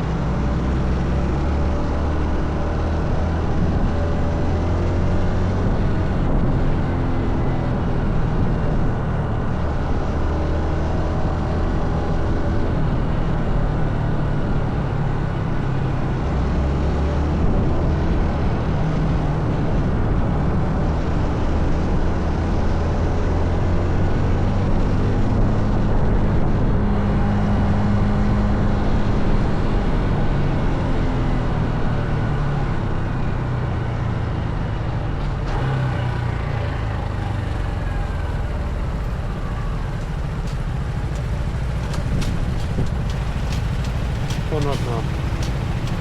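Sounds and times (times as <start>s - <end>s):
motorcycle engine running: 26.8s - 30.7s, 34.1s - 46.0s
wind noise: 38.8s - 46.0s.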